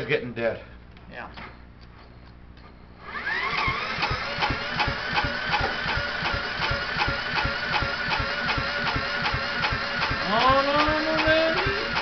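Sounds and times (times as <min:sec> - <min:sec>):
electric drill whining: 0:03.0 - 0:12.0
engine turning over thumps: 0:03.2 - 0:12.0.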